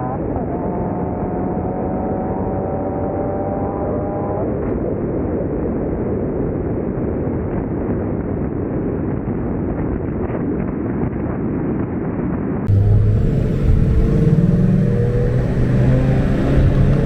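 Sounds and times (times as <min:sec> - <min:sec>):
car engine accelerating: 0:00.0 - 0:04.4, 0:12.7 - 0:17.0
wind and road noise: 0:00.0 - 0:05.5, 0:12.7 - 0:17.0.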